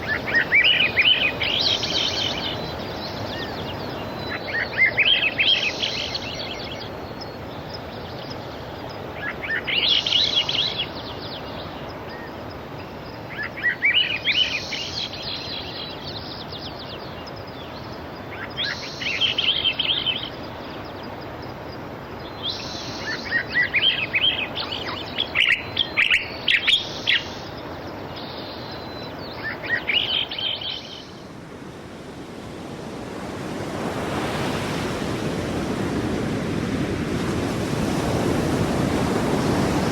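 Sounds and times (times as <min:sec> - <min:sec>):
songbird trilling: 0:00.0 - 0:12.3, 0:18.3 - 0:21.2, 0:22.2 - 0:31.2
sea surf: 0:00.0 - 0:39.9.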